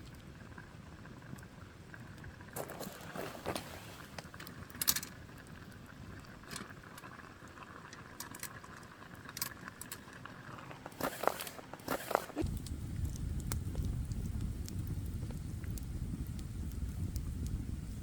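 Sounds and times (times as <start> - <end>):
campfire crackling and popping: 0.0 - 18.0
fire hissing: 2.5 - 4.8, 10.6 - 18.0.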